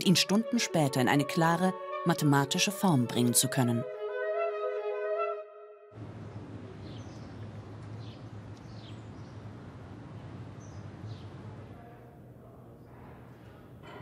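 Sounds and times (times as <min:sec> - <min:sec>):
small birds chirping: 0:06.8 - 0:09.5, 0:10.2 - 0:11.4.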